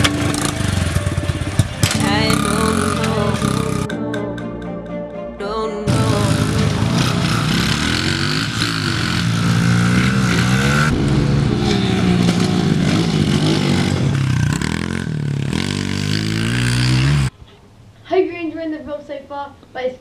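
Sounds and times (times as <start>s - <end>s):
pit bike engine revving: 0.0s - 3.9s, 5.9s - 17.3s.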